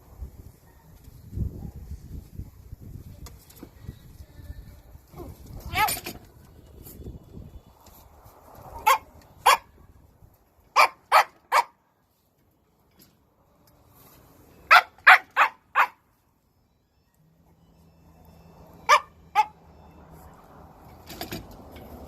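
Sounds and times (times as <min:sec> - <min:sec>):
dog barking: 0:00.6 - 0:01.9, 0:08.8 - 0:09.7, 0:10.8 - 0:11.8, 0:14.7 - 0:16.0, 0:18.9 - 0:19.6.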